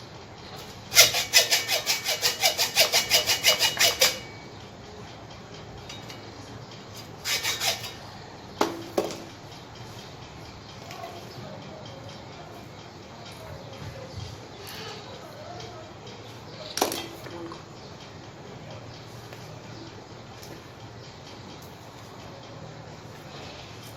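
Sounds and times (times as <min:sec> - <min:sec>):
abrasive hand tool rasping metal: 0:00.9 - 0:04.4, 0:07.2 - 0:08.0.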